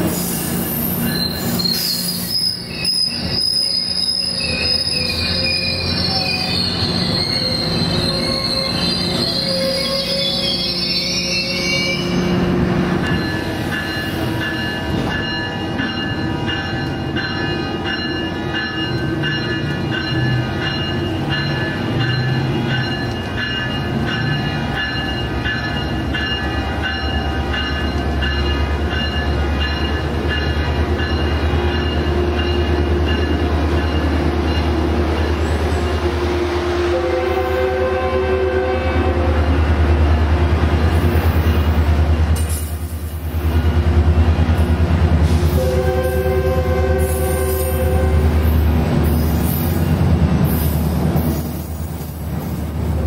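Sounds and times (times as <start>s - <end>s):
diesel locomotive engine rumble: 0.0s - 53.0s.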